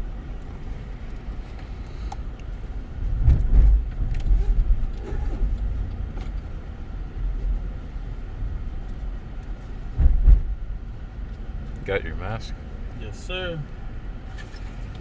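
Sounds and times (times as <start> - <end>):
road and engine rumble inside car: 0.0 - 15.0
heavy low thump: 9.9 - 10.9.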